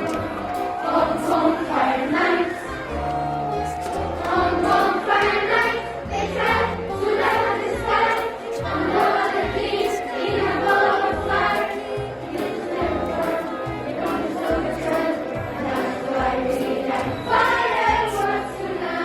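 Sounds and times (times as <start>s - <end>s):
group singing in chorus: 0.0s - 19.0s.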